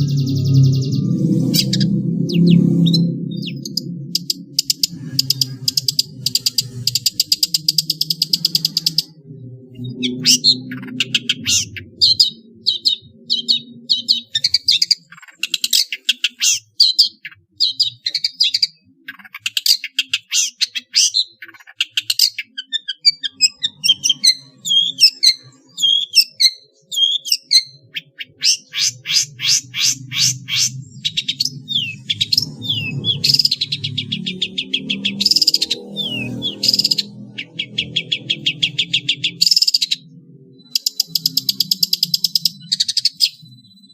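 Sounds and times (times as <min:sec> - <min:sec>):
bird chattering notes: 0:00.0 - 0:09.2, 0:09.9 - 0:43.6
whistled bird chirps: 0:00.0 - 0:09.2, 0:19.6 - 0:40.0, 0:40.6 - 0:43.9.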